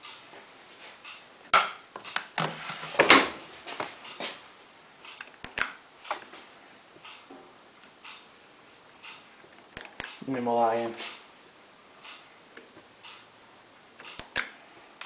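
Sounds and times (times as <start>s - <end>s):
quick clicks: 14.0s - 14.6s.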